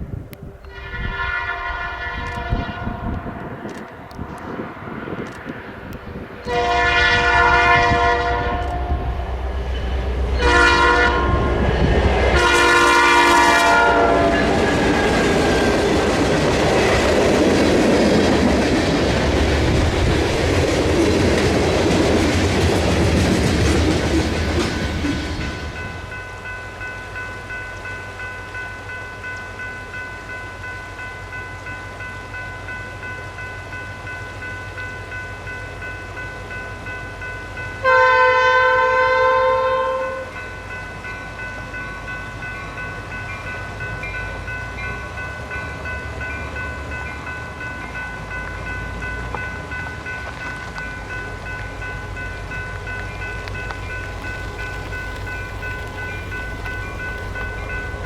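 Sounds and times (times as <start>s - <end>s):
train rumbling: 0.0s - 58.0s
locomotive horn blast: 0.6s - 3.6s, 6.4s - 9.2s, 10.4s - 15.4s, 37.8s - 40.4s.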